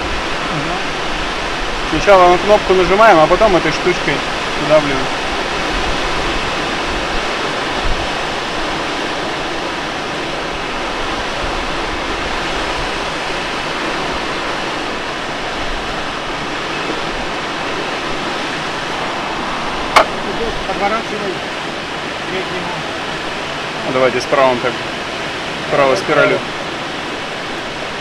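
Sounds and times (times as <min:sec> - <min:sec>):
air rushing past glider: 0:04.2 - 0:22.2.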